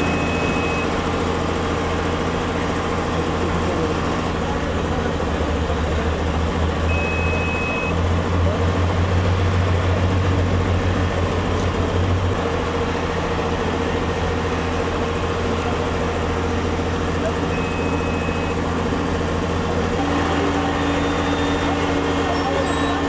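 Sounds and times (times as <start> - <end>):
short high beep: 0.0 - 1.0, 6.9 - 8.0, 17.5 - 18.6
large vehicle engine running: 0.0 - 23.0.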